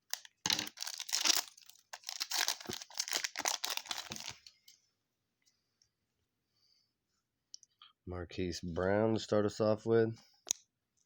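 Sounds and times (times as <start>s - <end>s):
foil wrapper tearing and crinkling: 0.0s - 4.5s.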